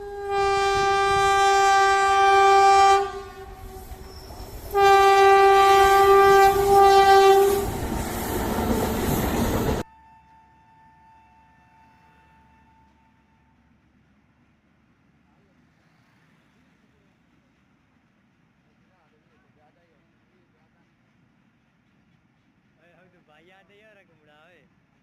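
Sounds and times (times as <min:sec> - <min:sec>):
train horn blasts: 0:00.0 - 0:07.9
train rumble and clatter: 0:00.0 - 0:25.0.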